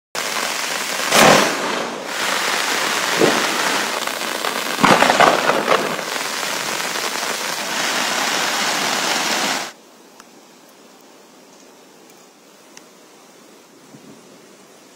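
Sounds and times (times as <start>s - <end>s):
heavy rain hissing: 0.1s - 9.8s
sharp crackles: 0.2s - 9.8s.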